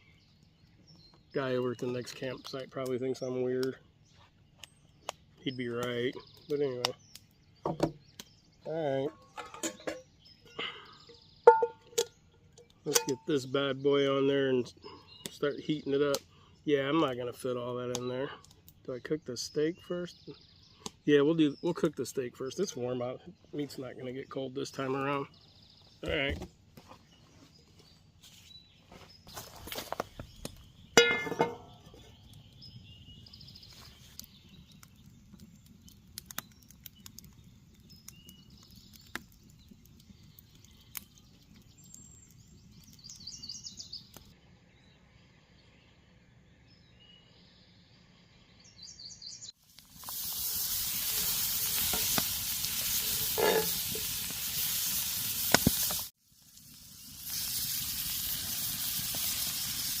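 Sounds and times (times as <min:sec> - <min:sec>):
faint small clicks and chirps: 0:03.7 - 0:05.2, 0:33.6 - 0:44.4
steak sizzling on a griddle: 0:49.6 - 1:00.0.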